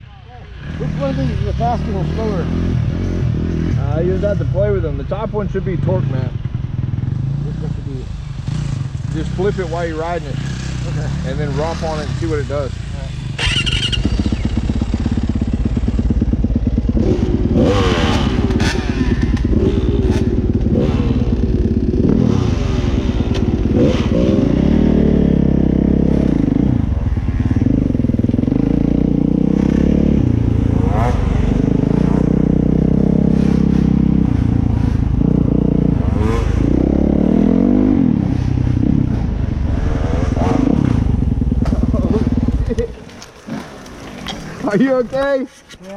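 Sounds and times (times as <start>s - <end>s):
dirt bike engine revving: 0.5s - 45.4s.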